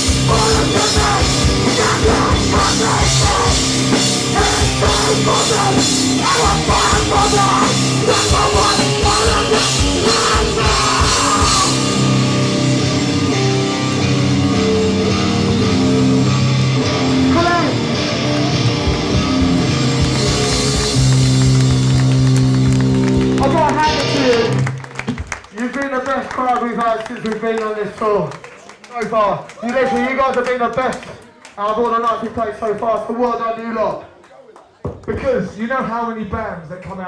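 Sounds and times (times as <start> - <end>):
guitars playing: 0.0 - 24.8
drum kit playing: 0.0 - 25.3.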